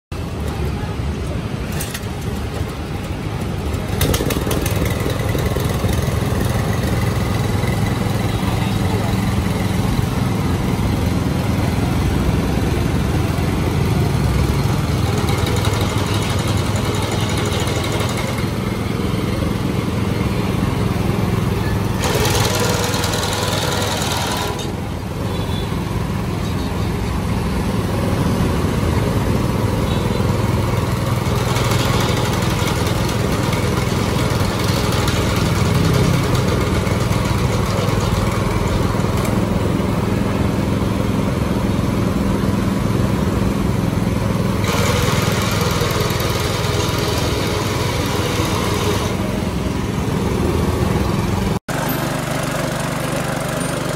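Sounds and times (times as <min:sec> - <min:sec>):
mower engine running: 0:00.2 - 0:53.9.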